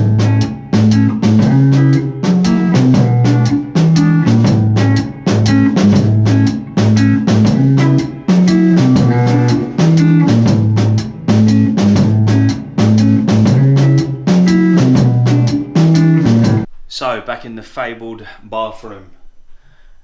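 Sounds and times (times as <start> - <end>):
rock guitar riff: 0.0 - 16.8
drum kit beat: 0.0 - 17.1.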